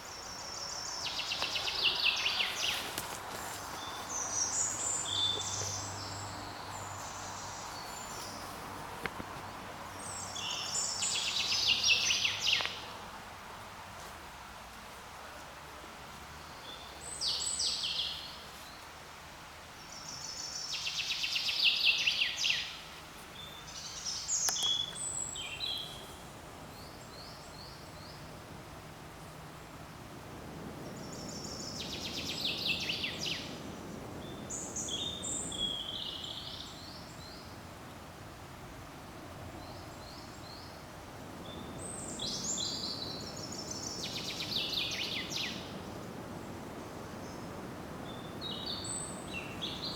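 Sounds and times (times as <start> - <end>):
songbirds trilling and whistling: 0.0 - 8.6, 19.9 - 28.4, 30.8 - 37.6, 39.6 - 45.9, 46.5 - 49.9
soft forest rushing: 0.0 - 49.9.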